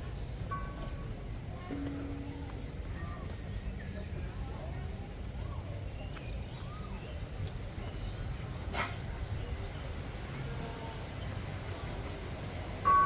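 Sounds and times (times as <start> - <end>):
faint bird chirps: 0.1 - 4.8, 5.4 - 8.3.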